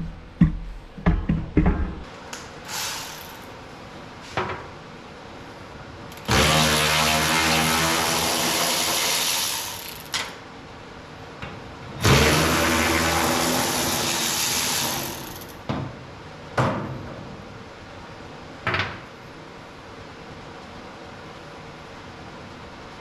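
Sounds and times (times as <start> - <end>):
power tool running in bursts: 2.7 - 3.5, 6.1 - 10.3, 12.0 - 15.6.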